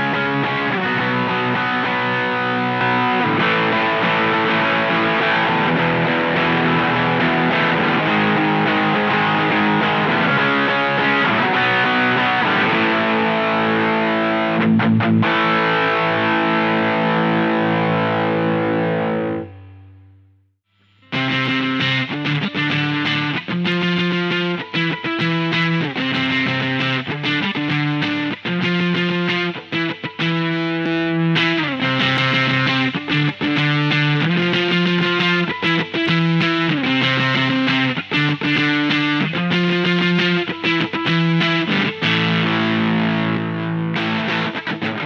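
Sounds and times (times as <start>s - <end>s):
distorted electric guitar: 0.0s - 45.0s.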